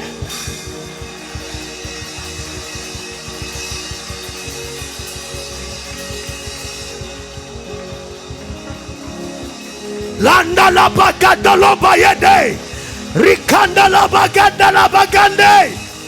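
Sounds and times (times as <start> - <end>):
church band music: 0.0 - 16.0
person praying: 10.2 - 15.9.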